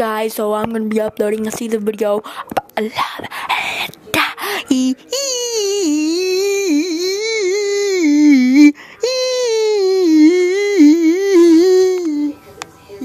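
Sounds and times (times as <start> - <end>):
high-pitched voice humming: 4.2 - 12.4.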